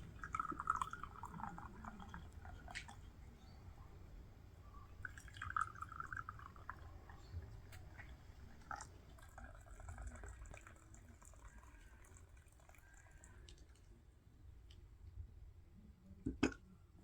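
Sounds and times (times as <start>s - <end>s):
liquid dripping and pouring: 0.0s - 3.4s, 4.9s - 14.0s.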